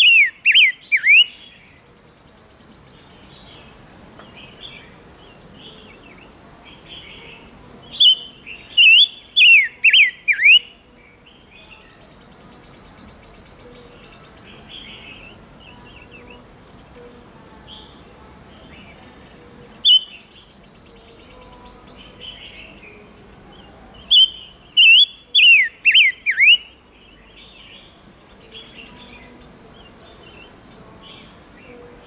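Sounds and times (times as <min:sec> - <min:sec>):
bird whistling downward notes: 0:00.0 - 0:01.3, 0:19.8 - 0:20.1, 0:24.1 - 0:26.6
soft bird chattering calls: 0:00.0 - 0:03.8, 0:04.4 - 0:10.8, 0:11.8 - 0:23.0, 0:24.0 - 0:31.7.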